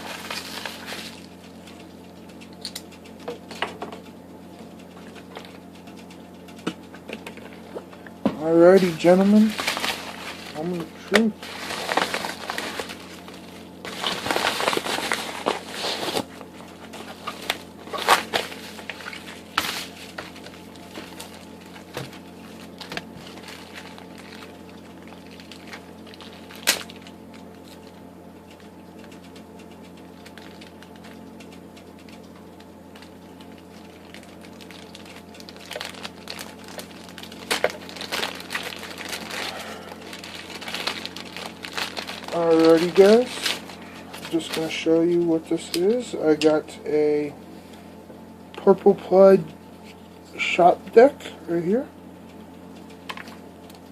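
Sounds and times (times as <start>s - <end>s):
packaging crinkling and rustling: 0.0s - 1.5s, 7.1s - 28.0s, 32.1s - 46.0s, 52.8s - 53.9s
steady low hum: 0.0s - 53.9s.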